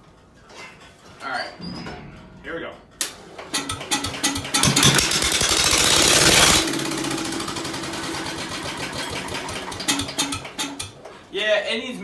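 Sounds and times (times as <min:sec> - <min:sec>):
tractor engine starting and running: 0:03.0 - 0:11.2.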